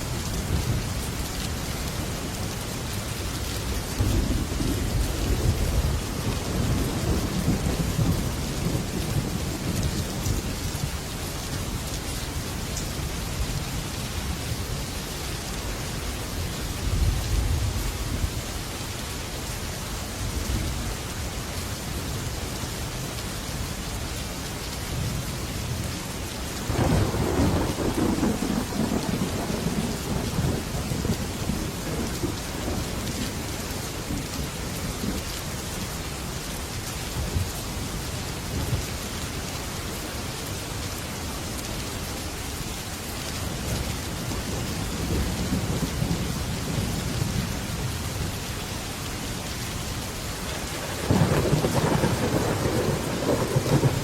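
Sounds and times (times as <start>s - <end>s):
heavy rain on a metal roof: 0.0s - 54.0s
thunder rumbling: 4.0s - 10.5s, 26.7s - 33.3s, 50.7s - 54.0s.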